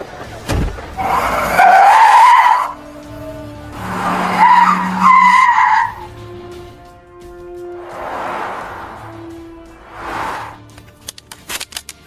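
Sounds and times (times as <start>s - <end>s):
background music: 0.0s - 12.0s
car tyres squealing: 0.8s - 10.7s.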